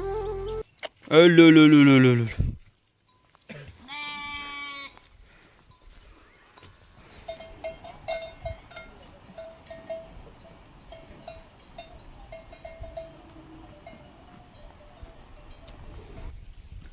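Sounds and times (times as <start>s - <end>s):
livestock bells clanking: 5.6s - 16.3s.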